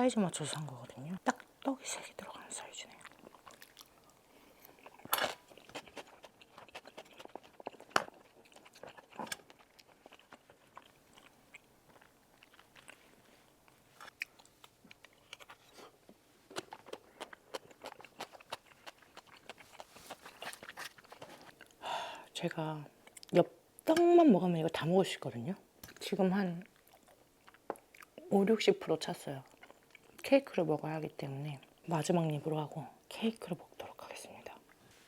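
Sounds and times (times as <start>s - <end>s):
close chewing with wet mouth sounds: 0.5s - 21.8s, 25.8s - 28.4s, 29.0s - 30.3s.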